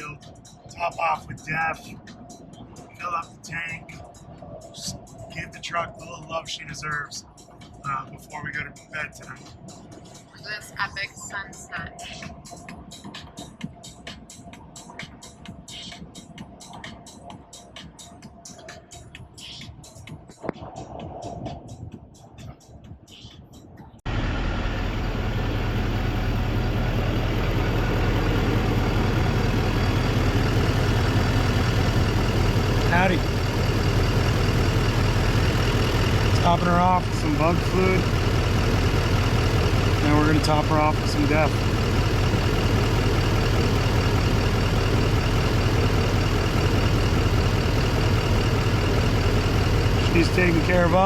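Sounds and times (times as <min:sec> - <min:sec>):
diesel engine idling: 0:24.0 - 0:51.0.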